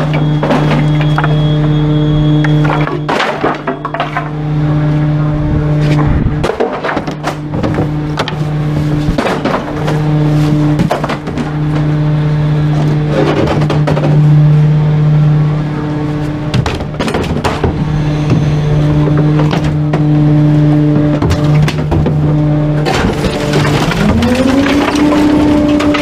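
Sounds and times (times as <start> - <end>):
garbage truck engine drone: 0.0 - 26.0
truck body clattering: 6.4 - 11.9, 16.4 - 20.1, 20.9 - 26.0.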